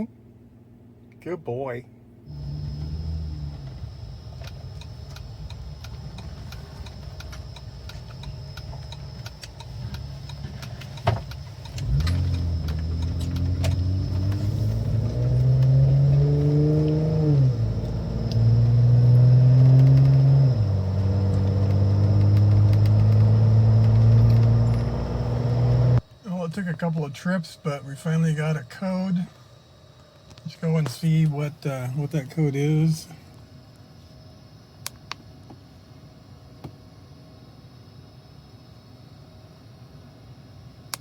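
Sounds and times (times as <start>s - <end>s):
car engine idling and accelerating: 2.3s - 26.0s
click: 19.7s - 20.2s, 21.3s - 24.8s.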